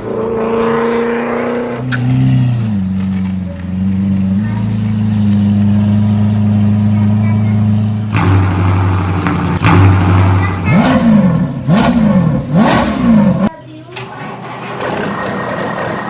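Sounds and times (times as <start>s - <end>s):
engine-like drone: 0.0s - 13.5s.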